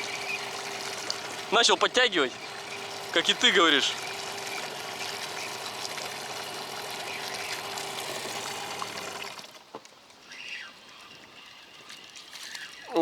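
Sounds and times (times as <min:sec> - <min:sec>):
water splashing against boat: 0:00.0 - 0:10.0
outboard motor hum: 0:00.0 - 0:13.0.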